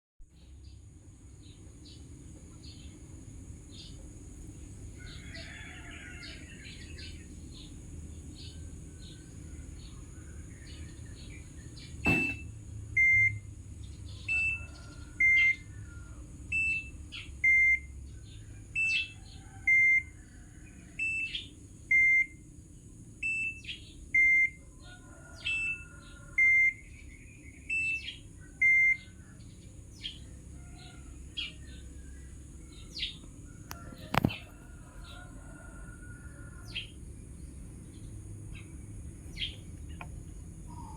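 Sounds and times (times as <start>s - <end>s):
washing machine humming: 1.8s - 13.8s, 36.7s - 40.9s
faint bird chirps: 8.4s - 13.3s, 38.5s - 40.9s
alternating two-tone beeps: 12.1s - 13.4s.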